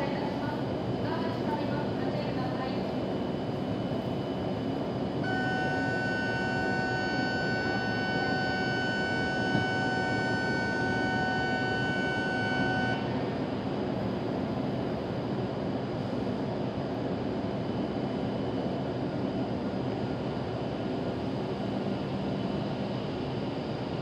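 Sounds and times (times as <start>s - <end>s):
station rumble with train: 0.0s - 24.0s
electronic signal tone: 5.2s - 13.2s.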